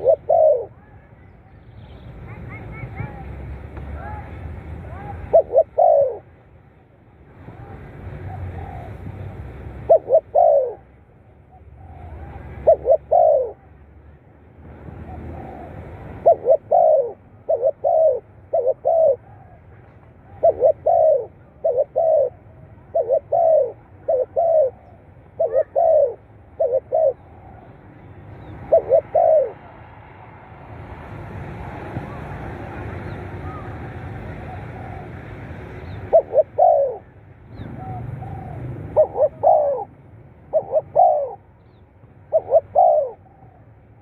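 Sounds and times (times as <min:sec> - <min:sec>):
dove cooing: 0:00.0 - 0:00.8, 0:05.1 - 0:06.3, 0:08.2 - 0:09.0, 0:09.8 - 0:10.9, 0:11.5 - 0:13.7, 0:15.0 - 0:27.8, 0:28.4 - 0:29.8, 0:33.4 - 0:44.0.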